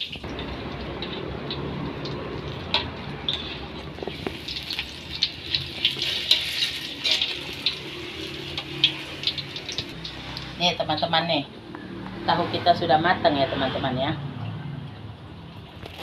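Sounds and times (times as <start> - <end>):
tofu frying in hot oil: 0.0 - 11.2
utensil clicking against wok: 0.3 - 10.6.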